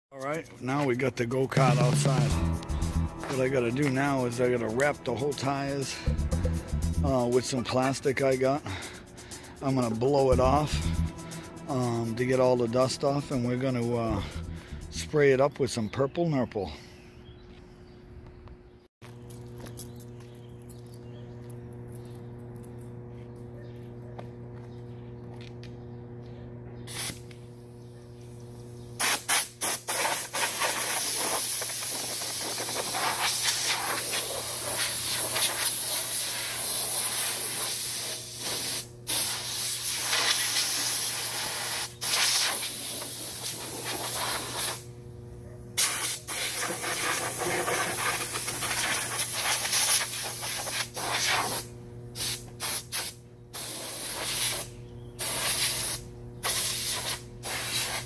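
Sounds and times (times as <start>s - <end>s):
compressed air hissing from blow gun: 26.9s - 27.3s, 29.0s - 44.9s, 45.8s - 58.0s.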